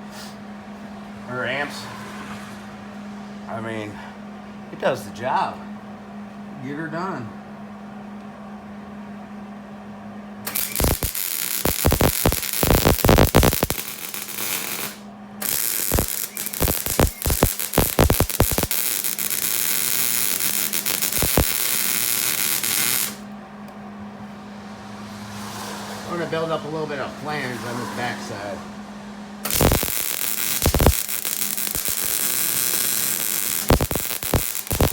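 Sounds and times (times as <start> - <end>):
low hum: 10.4 - 25.3, 28.6 - 34.9
welding arc crackling: 10.5 - 23.2, 29.4 - 34.9.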